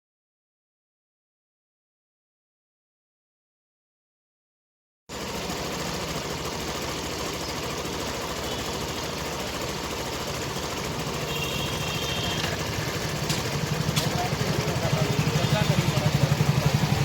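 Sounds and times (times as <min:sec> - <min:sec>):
scooter engine idling: 0:05.1 - 0:17.0.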